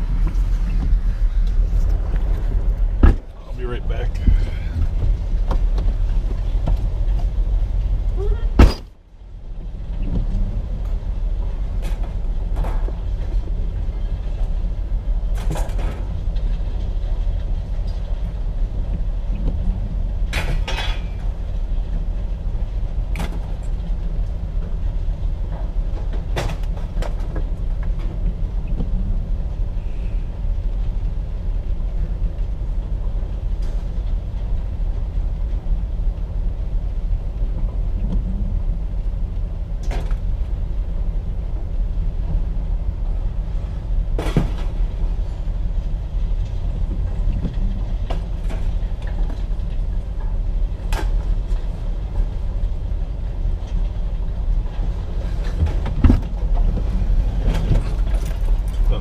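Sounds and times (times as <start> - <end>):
sharp knocks and clanks: 3.0 - 3.4.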